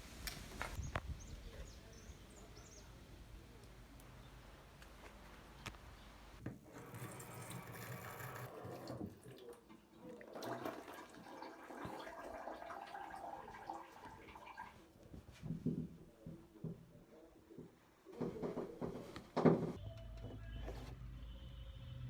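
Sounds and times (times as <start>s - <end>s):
tap water running into sink: 6.7s - 14.8s.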